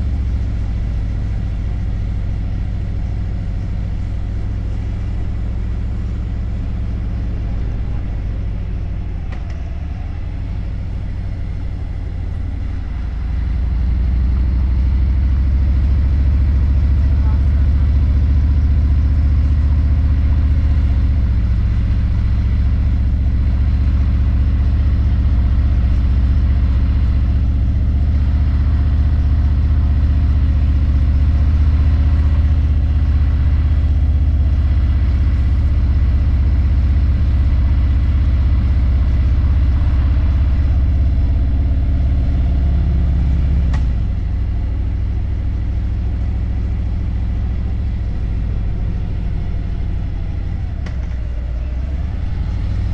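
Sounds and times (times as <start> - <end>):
motorcycle engine running: 0.0 - 52.9
click: 9.3 - 9.6, 43.7 - 43.9.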